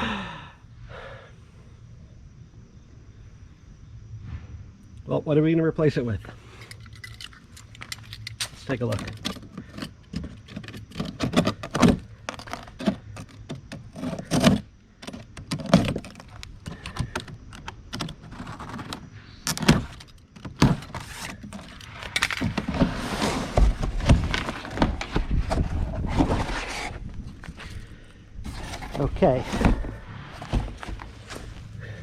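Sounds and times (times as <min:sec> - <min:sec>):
scraping and rustling: 0:06.3 - 0:32.0
metal clinks and knocks: 0:06.6 - 0:18.1.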